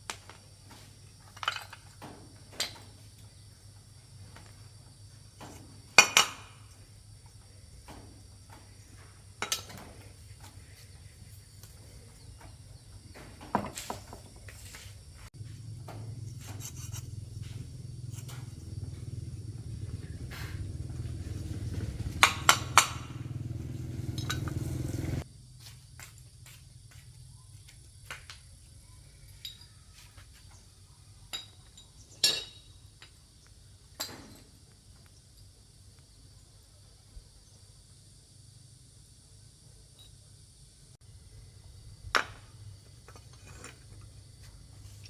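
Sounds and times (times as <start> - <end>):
motor humming: 15.9 - 25.2.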